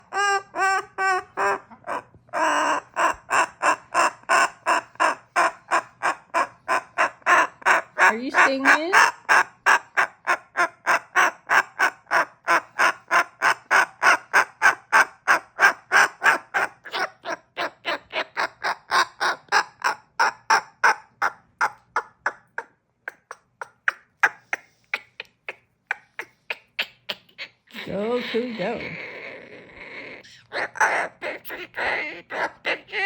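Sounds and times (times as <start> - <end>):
cockatoo repeated calls: 0.0 - 33.0.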